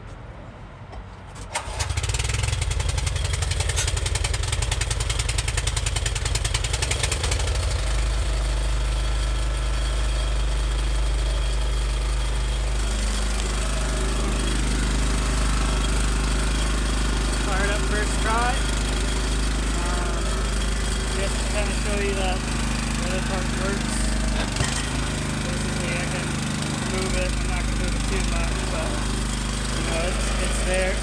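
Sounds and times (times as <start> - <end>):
small gasoline engine running: 1.6 - 31.0.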